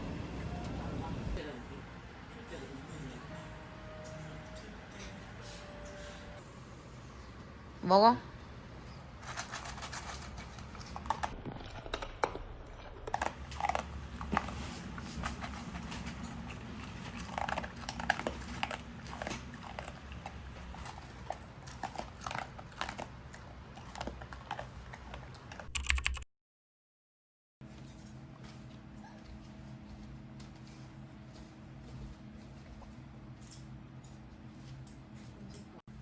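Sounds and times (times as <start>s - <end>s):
dog chewing food: 9.2s - 25.7s.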